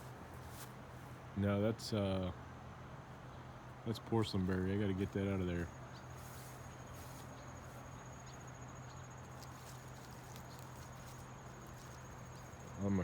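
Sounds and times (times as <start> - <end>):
crickets trilling: 5.5 - 13.0.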